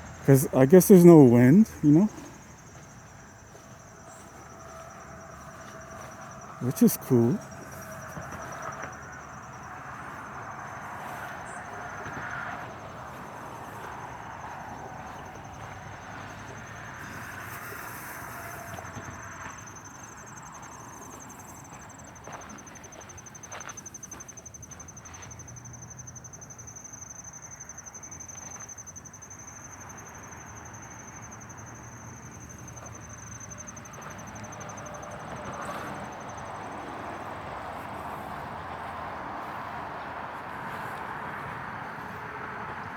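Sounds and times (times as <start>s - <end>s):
insect trilling: 0.0s - 2.8s
soft outdoor hiss: 0.0s - 4.8s.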